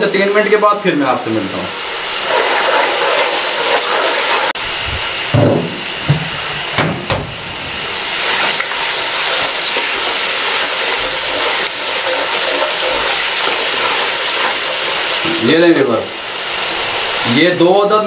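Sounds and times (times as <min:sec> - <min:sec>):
onion paste sizzling in a pot: 0:00.0 - 0:18.0
ladle scraping a pot: 0:09.7 - 0:15.4.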